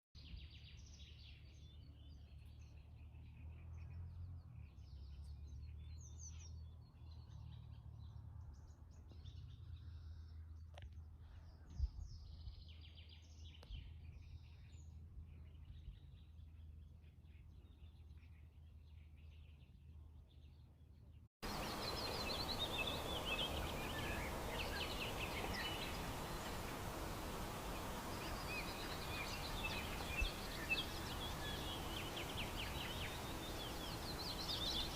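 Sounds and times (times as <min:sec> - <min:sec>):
songbirds chirping and singing: 0:00.2 - 0:34.9
steady hiss: 0:21.4 - 0:34.9.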